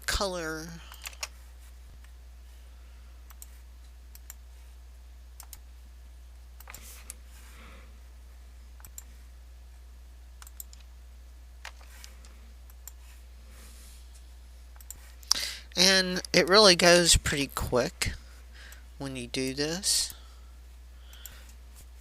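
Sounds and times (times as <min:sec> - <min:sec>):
steady low hum: 0:00.0 - 0:22.0
computer mouse and keyboard clicks: 0:00.9 - 0:01.4, 0:05.4 - 0:05.6, 0:06.6 - 0:07.2, 0:08.8 - 0:09.1, 0:10.4 - 0:10.9, 0:14.7 - 0:15.3.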